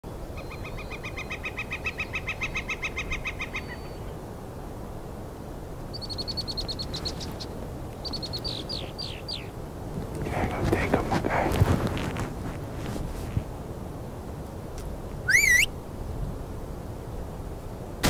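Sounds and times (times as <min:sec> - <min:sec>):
birds calling: 0:05.9 - 0:11.6, 0:15.3 - 0:15.7.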